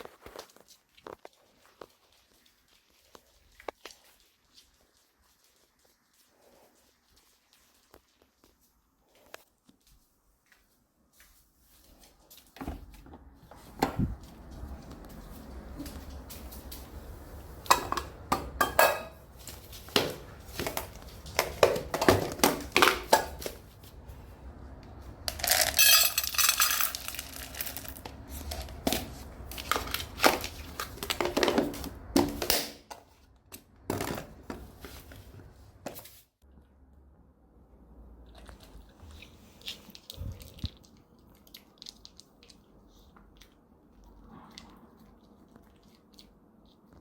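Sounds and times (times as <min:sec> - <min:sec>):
dishes and utensils clattering: 0:17.7 - 0:19.3, 0:25.5 - 0:27.4.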